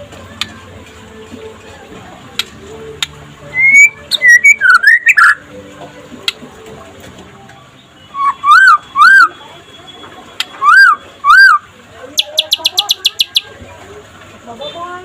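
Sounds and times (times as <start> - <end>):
bird singing whistled notes: 3.5 - 5.4, 7.8 - 11.6, 12.2 - 13.5.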